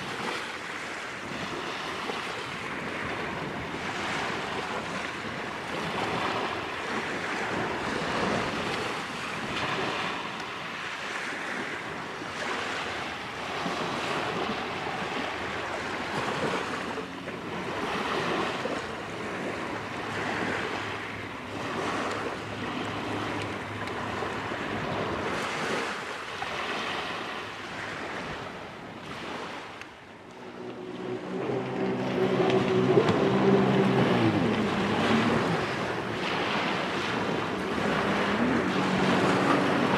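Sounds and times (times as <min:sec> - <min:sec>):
waves washing on shore: 0:00.0 - 0:39.9
wind on microphone: 0:00.0 - 0:39.9
steady pitched drone: 0:29.9 - 0:39.9.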